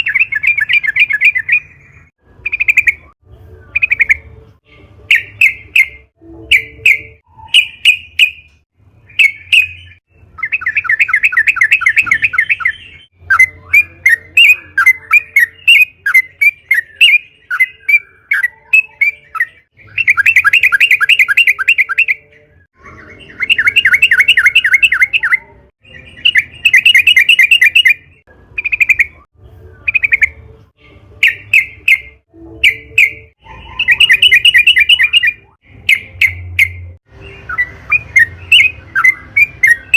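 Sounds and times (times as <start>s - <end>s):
bird chirping phrases: 0.0s - 39.9s.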